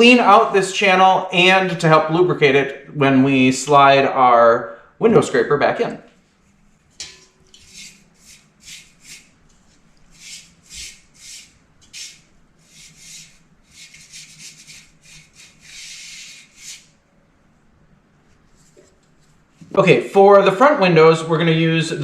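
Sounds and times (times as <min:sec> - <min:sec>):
scrubbing rubbing strokes: 0:07.5 - 0:17.0.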